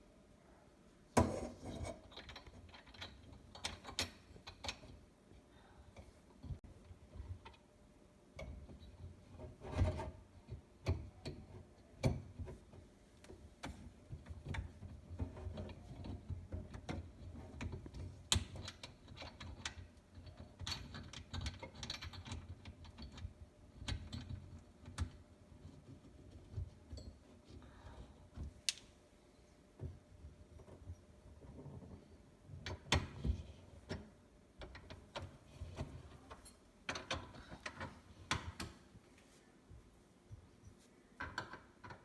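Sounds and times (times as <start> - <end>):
metal parts clicking and knocking: 1.2 - 5.1, 13.6 - 28.0, 30.5 - 38.8.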